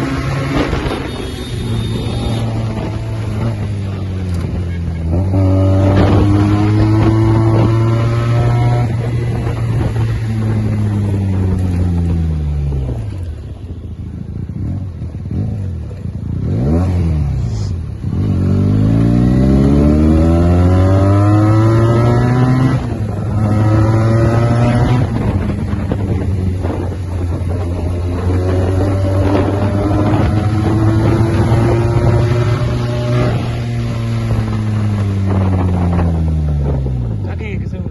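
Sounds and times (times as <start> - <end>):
motorcycle engine revving: 0.0 - 37.9.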